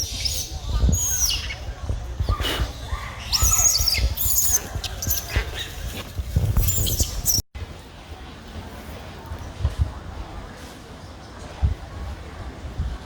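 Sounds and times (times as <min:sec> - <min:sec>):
baby monkey crying: 0:00.0 - 0:05.8.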